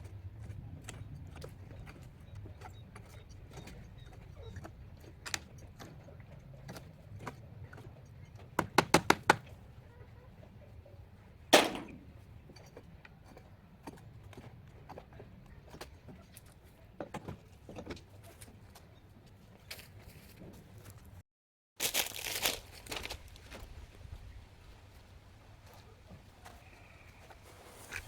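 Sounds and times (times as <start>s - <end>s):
sharp knocks: 11.6s - 12.1s.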